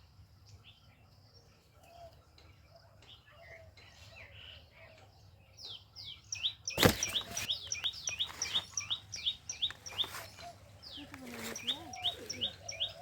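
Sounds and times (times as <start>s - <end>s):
small birds chirping: 0.0s - 13.0s
brief rustle: 6.7s - 9.0s, 9.6s - 12.5s
loud sharp crackle: 6.8s - 7.5s.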